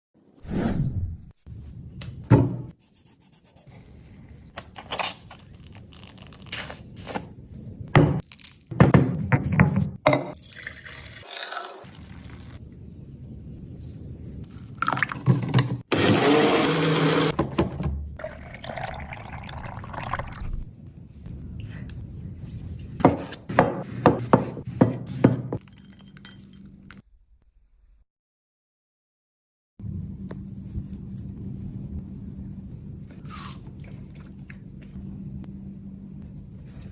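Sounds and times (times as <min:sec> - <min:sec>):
liquid being poured: 0:10.4 - 0:12.6, 0:18.2 - 0:20.7
electric blender running: 0:15.9 - 0:17.4.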